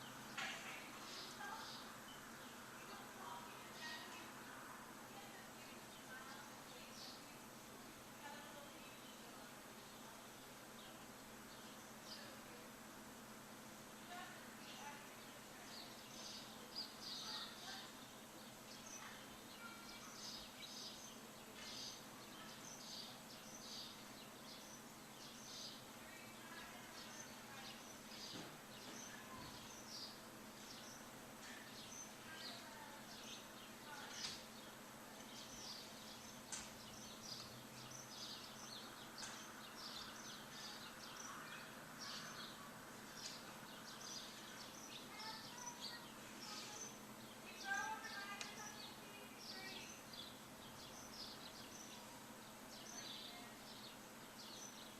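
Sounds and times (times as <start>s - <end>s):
low background hum: 0.0s - 54.9s
songbirds chirping: 0.0s - 54.9s.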